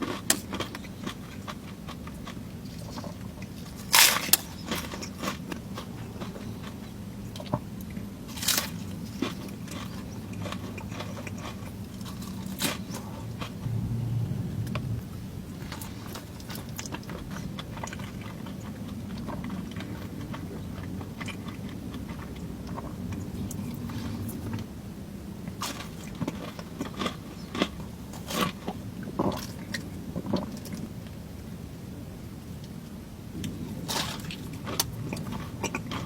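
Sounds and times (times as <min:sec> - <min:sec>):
steady low hum: 0:13.3 - 0:18.0.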